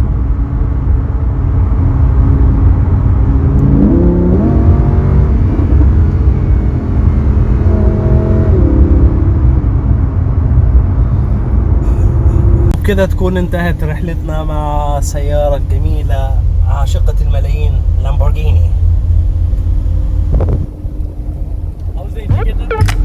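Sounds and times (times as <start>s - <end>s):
heavy low rumble: 0.0s - 23.0s
sports car engine revving: 3.4s - 12.8s, 18.6s - 23.0s.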